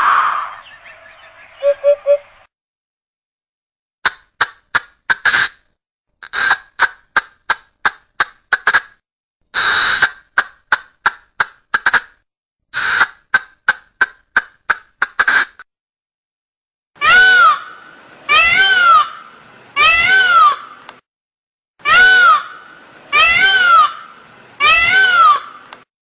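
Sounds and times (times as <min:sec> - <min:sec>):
harsh drawn-out bird calls: 0:00.0 - 0:02.5, 0:09.5 - 0:10.2, 0:17.0 - 0:20.8, 0:21.8 - 0:25.8.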